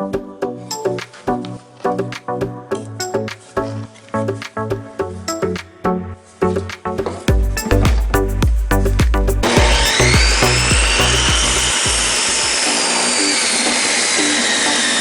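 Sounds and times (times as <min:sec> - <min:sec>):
background music: 0:00.0 - 0:15.0
table saw whirring: 0:10.0 - 0:15.0.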